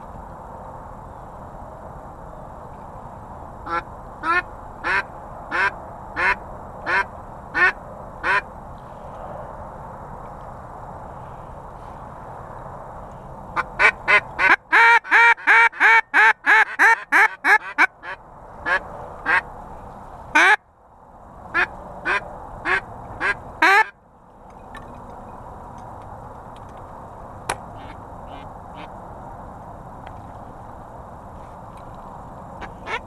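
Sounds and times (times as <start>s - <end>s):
duck call quacks: 3.7s - 8.4s, 13.6s - 19.4s, 20.4s - 20.6s, 21.6s - 23.9s, 27.8s - 28.9s, 32.6s - 33.0s.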